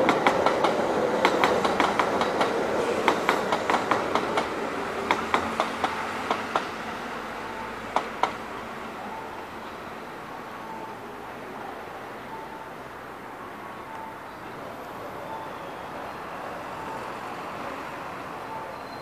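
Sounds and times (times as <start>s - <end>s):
train wheels clicking over rail joints: 0.0s - 6.8s
electric train running hum: 0.0s - 19.0s.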